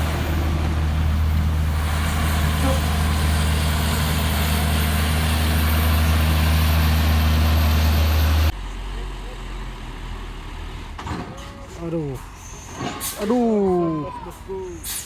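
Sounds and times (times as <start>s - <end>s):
truck diesel engine droning: 0.0s - 12.6s.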